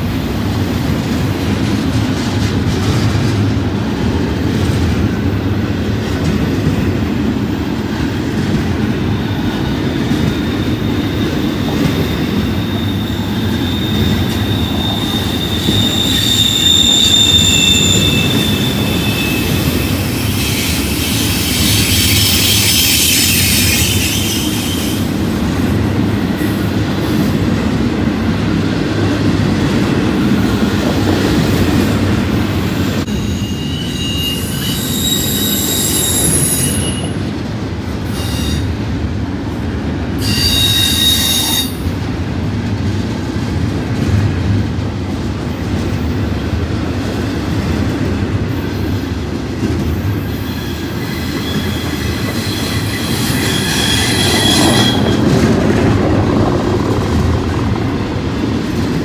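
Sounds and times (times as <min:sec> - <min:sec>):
train wheels rumbling on rail: 0:00.0 - 0:59.0
high-pitched wheel squeal: 0:10.8 - 0:25.1, 0:33.1 - 0:37.2, 0:40.2 - 0:41.8, 0:50.2 - 0:55.4.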